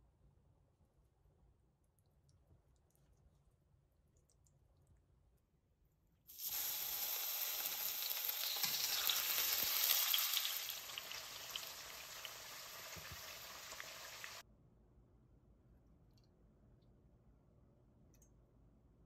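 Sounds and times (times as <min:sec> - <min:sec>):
tofu sizzling in oil: 0:06.3 - 0:14.4.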